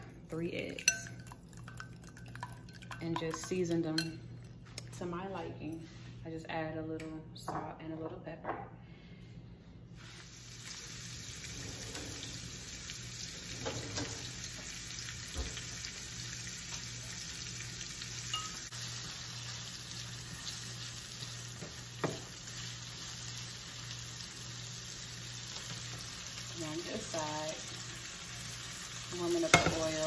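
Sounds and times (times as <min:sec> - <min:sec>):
low steady hum: 0:00.0 - 0:30.0
food sizzling in a frying pan: 0:10.0 - 0:30.0.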